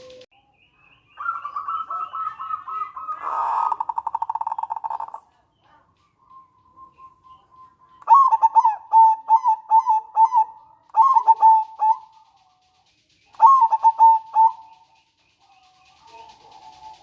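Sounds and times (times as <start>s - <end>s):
dove cooing: 1.2s - 5.2s, 8.1s - 12.4s, 13.3s - 14.9s.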